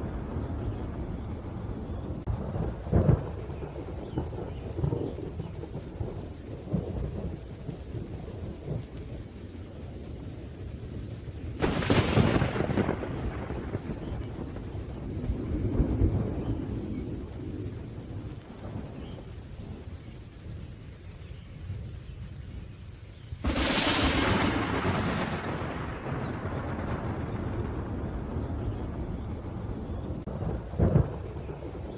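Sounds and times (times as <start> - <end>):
rolling thunder: 0.0 - 20.7, 23.4 - 31.9
light rain: 0.0 - 31.9
sharp thunderclap: 11.6 - 19.2, 23.4 - 31.9.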